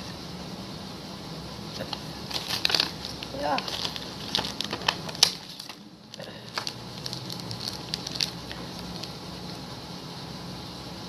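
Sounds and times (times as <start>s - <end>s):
plastic packaging crinkling: 1.8s - 9.6s.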